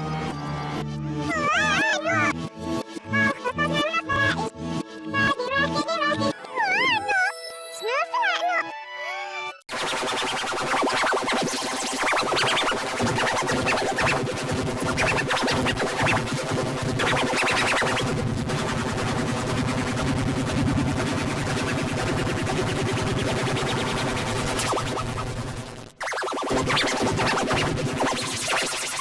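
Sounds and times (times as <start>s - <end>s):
distorted electronic music: 9.7s - 29.0s.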